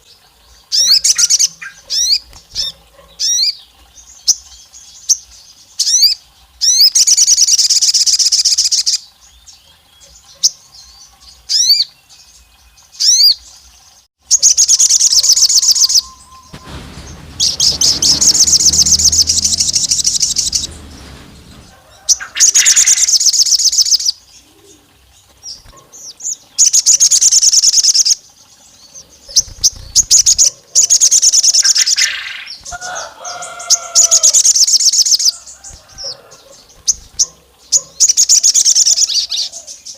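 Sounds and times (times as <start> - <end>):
short rising whistles: 14.8 - 23.0
low rumble: 15.3 - 23.0.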